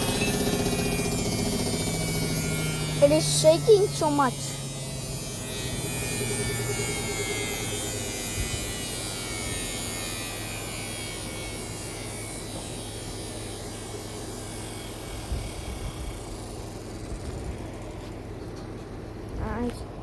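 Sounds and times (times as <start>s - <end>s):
washing machine spinning: 0.0s - 20.0s.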